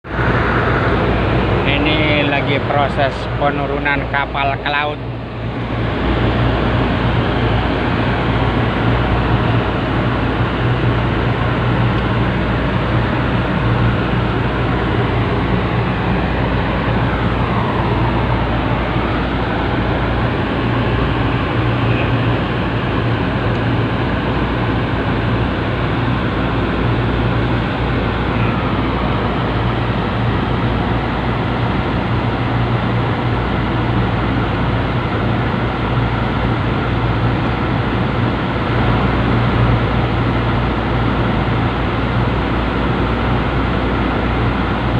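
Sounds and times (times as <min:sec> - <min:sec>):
large engine humming: 0:00.0 - 0:44.9
higher tone dipping and rising: 0:13.8 - 0:22.3.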